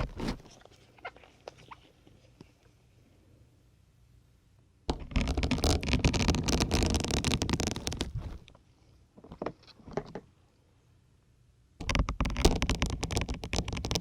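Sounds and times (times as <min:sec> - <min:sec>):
needles scraping into sponge: 0:05.1 - 0:08.5
short crunches: 0:05.1 - 0:08.6.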